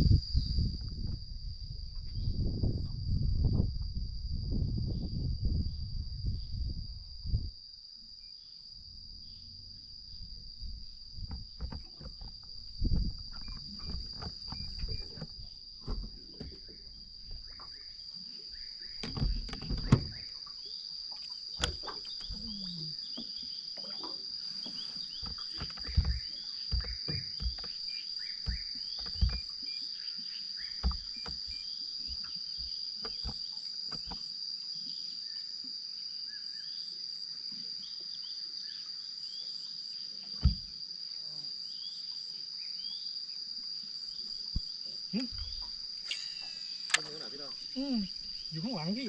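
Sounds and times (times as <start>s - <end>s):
insects droning: 0.0s - 49.0s
knocks and clicks: 25.2s - 27.8s, 28.5s - 29.5s.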